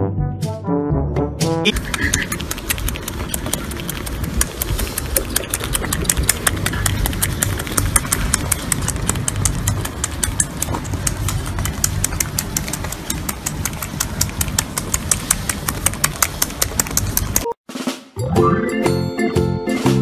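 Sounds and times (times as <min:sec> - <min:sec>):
otter pup suckling bottle: 0:01.7 - 0:17.5.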